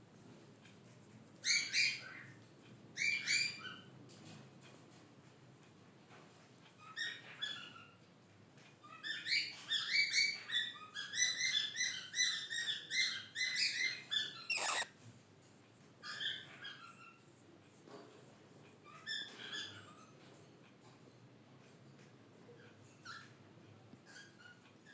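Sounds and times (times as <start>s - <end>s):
parrot chirping: 14.3s - 14.9s
parrot high call: 14.5s - 14.9s.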